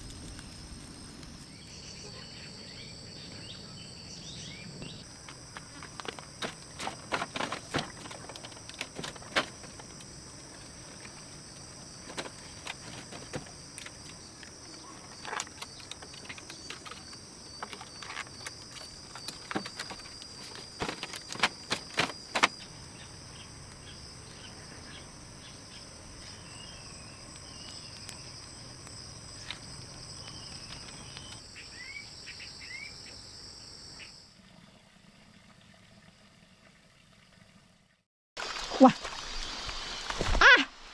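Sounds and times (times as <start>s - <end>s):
insects trilling: 0.0s - 34.3s
clicks and knocks: 5.5s - 10.2s, 12.0s - 22.6s.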